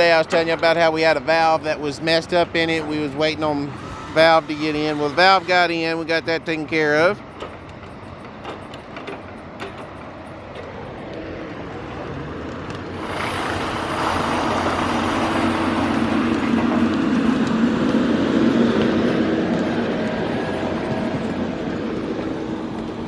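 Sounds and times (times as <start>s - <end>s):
diesel engine revving: 0.0s - 7.2s, 10.5s - 23.0s
high hiss: 2.9s - 7.1s.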